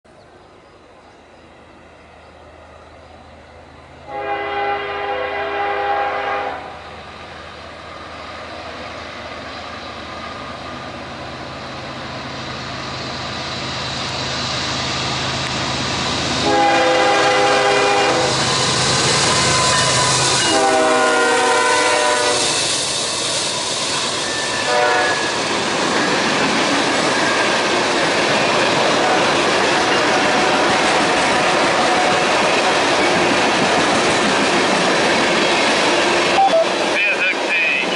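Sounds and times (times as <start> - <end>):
diesel locomotive engines droning: 0.1 - 37.9
train air horn blasts: 4.0 - 6.8, 16.4 - 18.6, 19.3 - 22.6, 24.6 - 25.3
train wheels clickety-clack on rails: 7.0 - 37.9.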